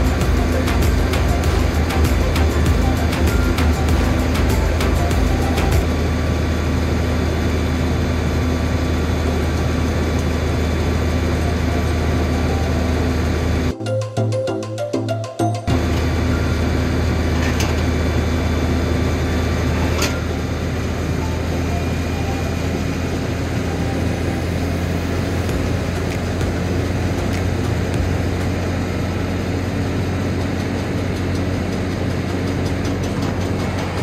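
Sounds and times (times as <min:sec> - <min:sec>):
heavy vehicle engine under load: 0:15.7 - 0:34.0
mechanical clatter: 0:30.2 - 0:34.0.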